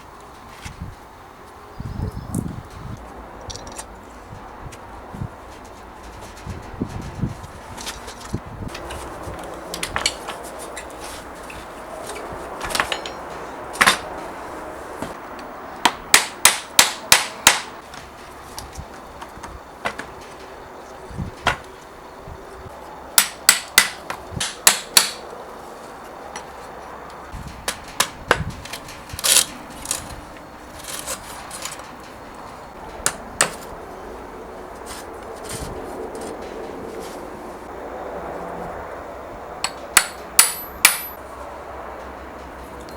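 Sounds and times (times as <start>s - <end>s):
hammer strikes: 12.6s - 14.2s, 15.8s - 18.2s, 23.2s - 25.3s, 32.9s - 33.7s, 39.6s - 41.2s.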